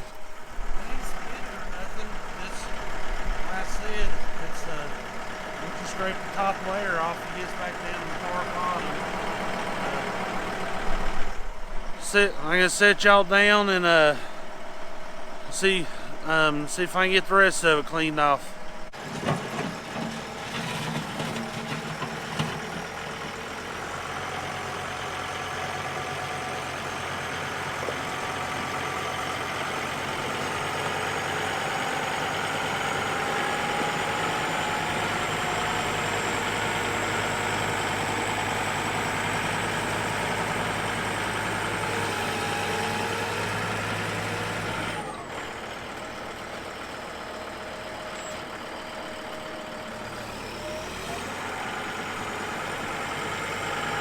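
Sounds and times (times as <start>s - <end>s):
tractor engine running: 0.0s - 54.0s
loader bucket scraping mud: 18.9s - 23.2s.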